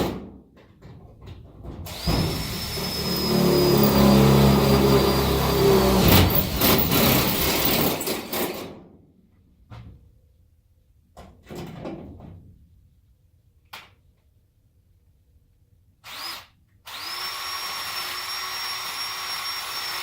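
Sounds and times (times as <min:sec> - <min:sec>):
power drill boring: 0:01.9 - 0:08.3, 0:16.0 - 0:20.0.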